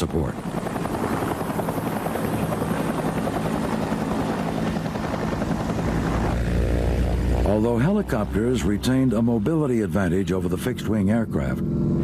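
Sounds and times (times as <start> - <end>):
helicopter rotor beating: 0.0 - 12.0
deep steady drone: 3.1 - 12.0.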